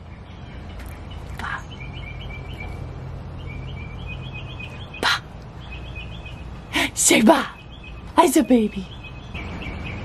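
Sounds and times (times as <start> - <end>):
songbird chirping: 0.0 - 10.0.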